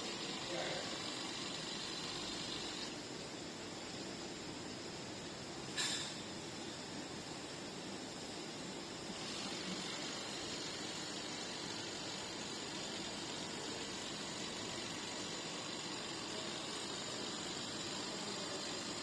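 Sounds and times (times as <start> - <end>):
small electric motor running: 0.0 - 3.0, 9.0 - 19.0.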